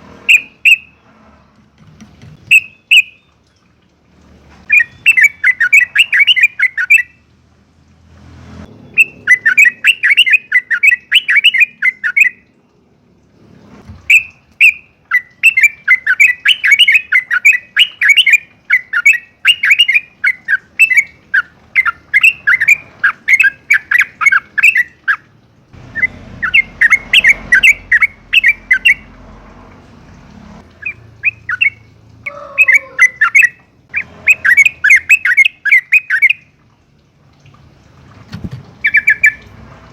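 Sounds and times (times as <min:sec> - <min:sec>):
bulbul chattering song: 0:00.2 - 0:01.0, 0:02.4 - 0:03.4, 0:04.6 - 0:07.3, 0:08.9 - 0:12.6, 0:14.1 - 0:29.2, 0:30.7 - 0:36.6, 0:38.8 - 0:39.5.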